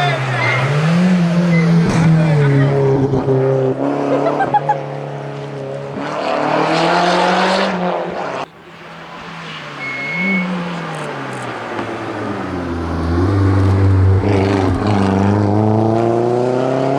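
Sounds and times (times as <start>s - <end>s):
rally car engine revving: 0.0s - 16.9s.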